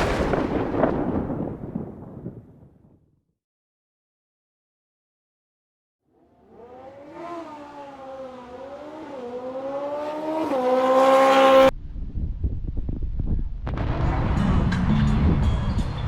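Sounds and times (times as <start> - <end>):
motorcycle engine revving: 6.1 - 11.7
deep bass beat: 12.0 - 16.0.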